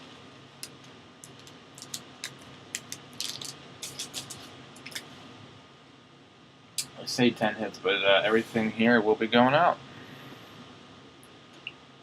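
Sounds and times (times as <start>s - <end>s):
trading cards being handled: 0.6s - 5.1s.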